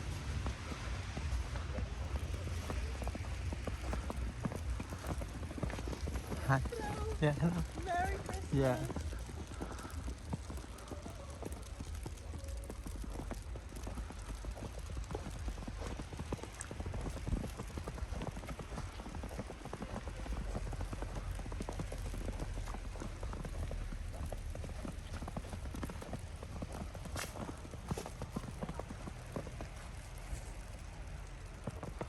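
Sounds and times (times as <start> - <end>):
footsteps crunching in snow: 0.0 - 9.5
wind buffeting microphone: 0.0 - 29.7.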